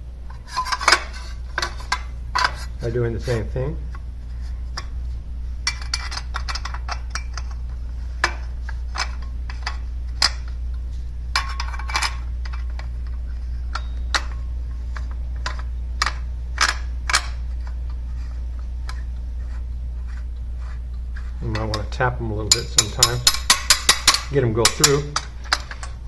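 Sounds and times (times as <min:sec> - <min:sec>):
steady low hum: 0:00.0 - 0:26.0
metal parts clinking: 0:05.6 - 0:07.6, 0:11.3 - 0:17.8, 0:21.4 - 0:26.0.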